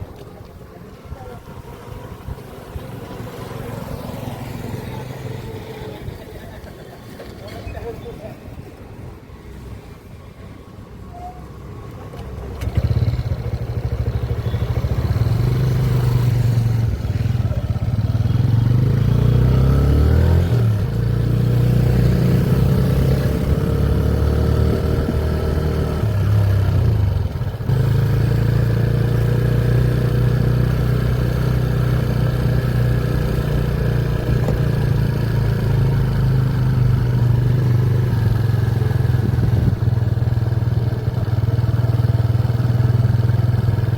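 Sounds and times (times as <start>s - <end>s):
motorcycle engine running: 12.6s - 43.9s.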